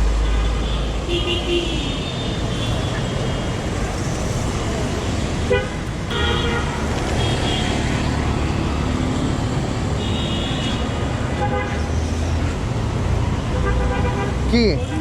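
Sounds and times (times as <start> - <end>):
car horn honks: 5.5 - 11.8
vehicle engines running: 6.1 - 13.0.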